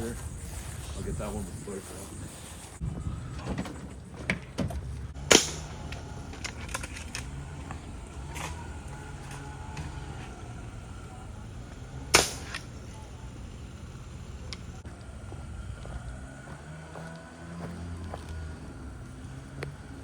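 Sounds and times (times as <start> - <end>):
steady low hum: 0.0 - 20.0
sharp gunshots: 5.2 - 9.9, 12.0 - 12.9.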